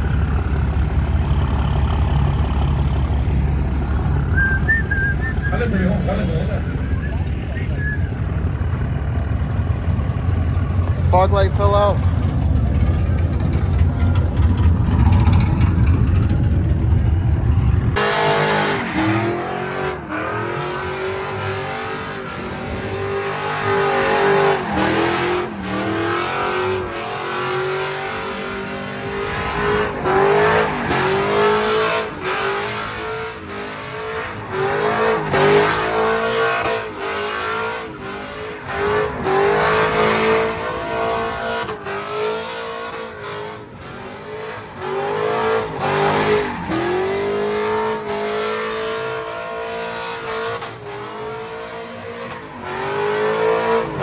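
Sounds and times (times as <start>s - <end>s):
low engine rumble: 0.0s - 18.0s
tires spinning: 0.0s - 54.0s
truck engine revving: 0.0s - 54.0s.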